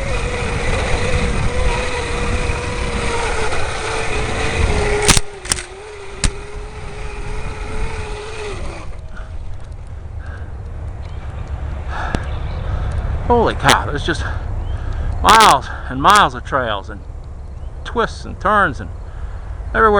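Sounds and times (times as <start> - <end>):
electric bike motor whining: 0.0 - 13.2
low rumble of riding: 0.0 - 19.9.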